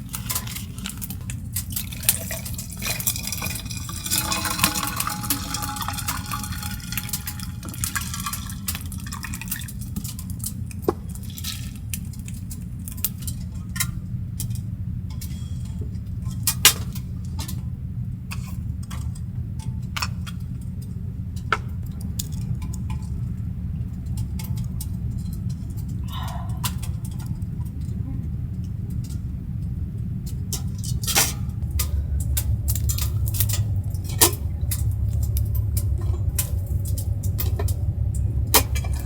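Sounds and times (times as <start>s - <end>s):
dishes and utensils clinking: 0.0s - 9.6s
steady low hum: 0.0s - 39.0s.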